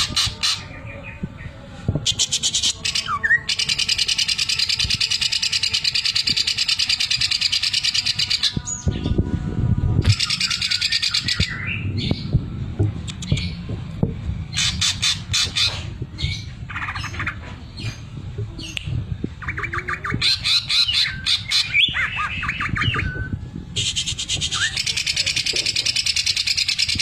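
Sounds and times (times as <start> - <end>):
bird rattling song: 14.5 - 18.0, 19.4 - 27.0.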